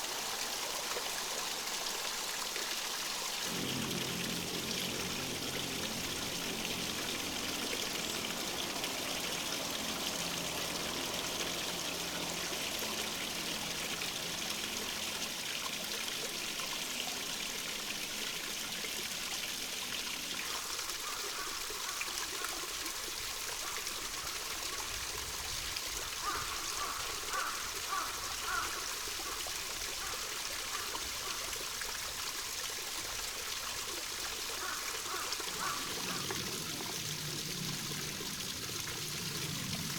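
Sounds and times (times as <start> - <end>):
small stream trickling and splashing: 0.0 - 39.9.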